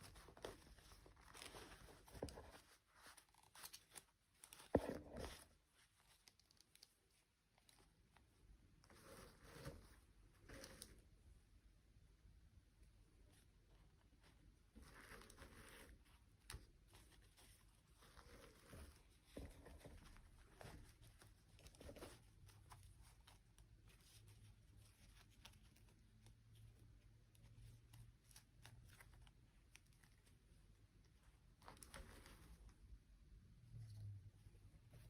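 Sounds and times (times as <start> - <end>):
soft rustling: 0.0 - 11.7, 12.6 - 35.0.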